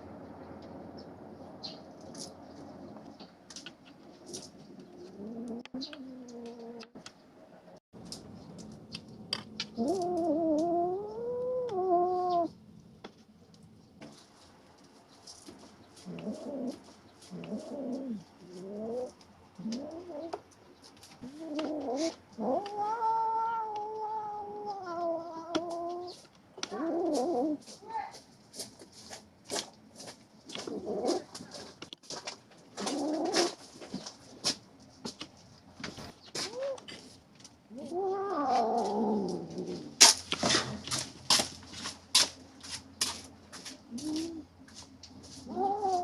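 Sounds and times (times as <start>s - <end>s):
kitten growling yowl: 9.8s - 12.5s, 21.2s - 26.1s, 26.7s - 27.6s, 37.7s - 40.0s, 45.4s - 46.0s.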